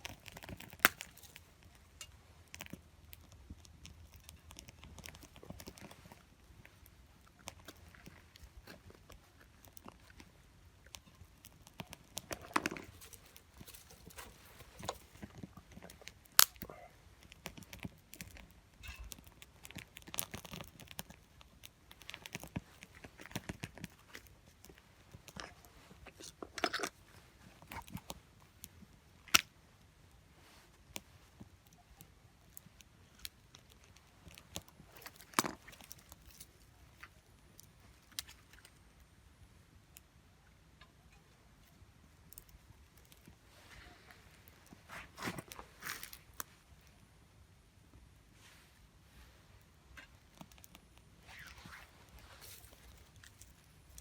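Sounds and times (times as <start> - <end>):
wood fire crackling and popping: 0.0 - 29.6.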